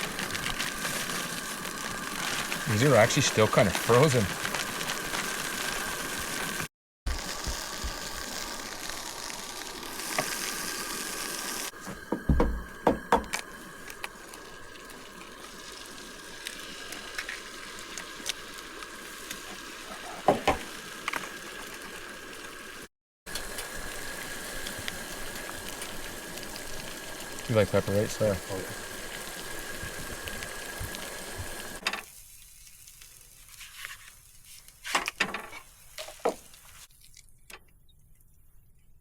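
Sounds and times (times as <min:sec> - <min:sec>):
food hissing in pan: 0:00.0 - 0:12.4, 0:13.4 - 0:34.9
utensil knocking against pan: 0:12.1 - 0:13.3.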